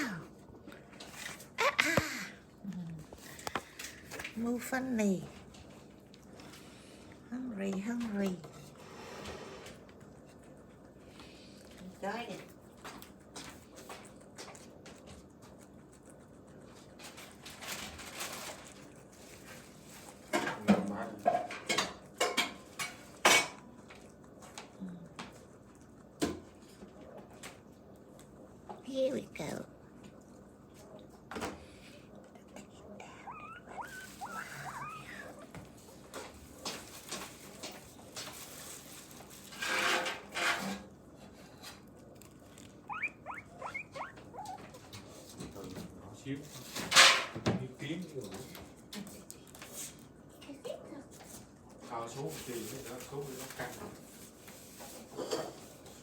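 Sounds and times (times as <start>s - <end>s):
rustling clatter: 16.7s - 20.7s, 35.6s - 42.8s
guinea pig squeaking: 32.7s - 37.6s, 42.2s - 45.4s.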